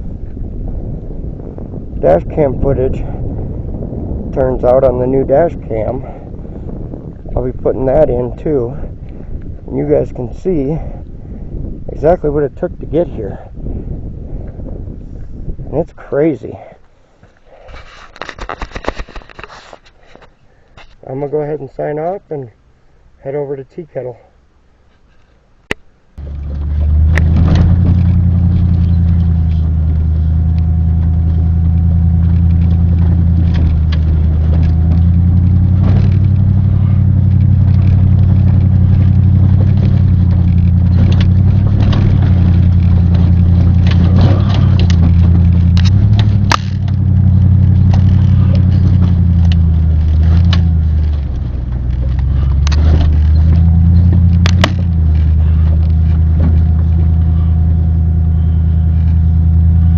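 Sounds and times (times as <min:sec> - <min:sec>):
road noise: 0:00.0 - 0:59.9
truck engine: 0:25.7 - 0:59.9
knocks and rattles: 0:26.2 - 0:57.3.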